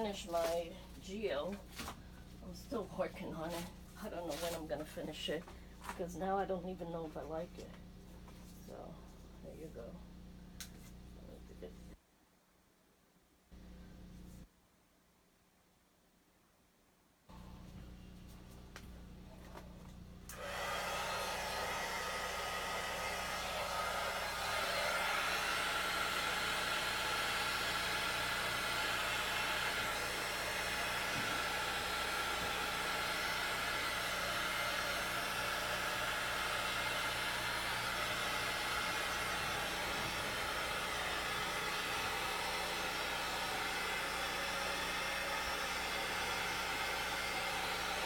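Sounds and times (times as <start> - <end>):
hot-air blower running: 17.3 - 48.0.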